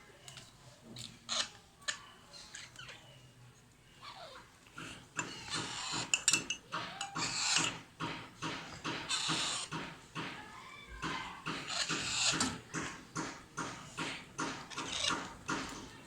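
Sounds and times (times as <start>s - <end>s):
parrot chicks begging calls: 1.3s - 2.0s, 4.0s - 9.9s, 11.0s - 12.6s, 14.4s - 15.6s.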